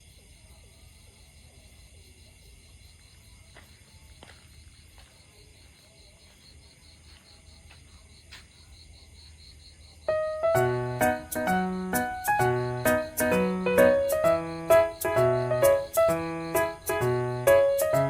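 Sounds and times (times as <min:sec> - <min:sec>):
crickets chirring: 0:01.0 - 0:18.0
plucked keyboard music: 0:10.1 - 0:18.0.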